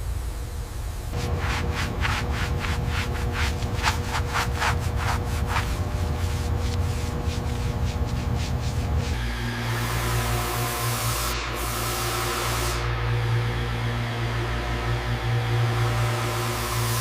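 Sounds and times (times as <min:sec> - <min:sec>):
steady low hum: 0:00.0 - 0:17.0
rubbing strokes on a surface: 0:01.2 - 0:09.2.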